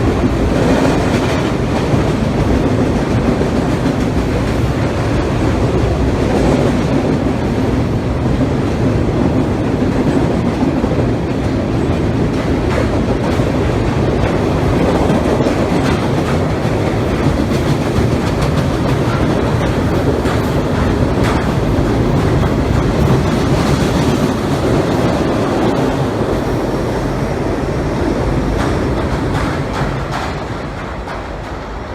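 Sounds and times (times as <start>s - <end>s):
freight train rumbling over bridge: 0.0s - 31.9s
wheels clacking on rail joints: 0.0s - 31.9s.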